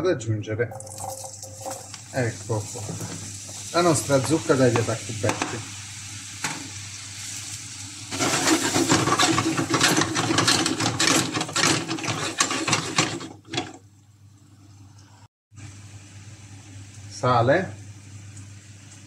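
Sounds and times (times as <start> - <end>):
pumpkin sizzling in hot oil: 0.8 - 13.4.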